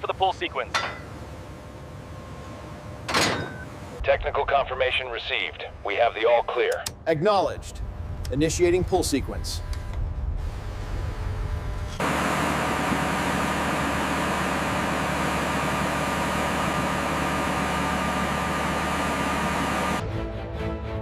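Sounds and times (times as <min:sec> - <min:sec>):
heavy machinery droning: 0:00.0 - 0:04.0, 0:07.6 - 0:20.0
music: 0:20.0 - 0:21.0.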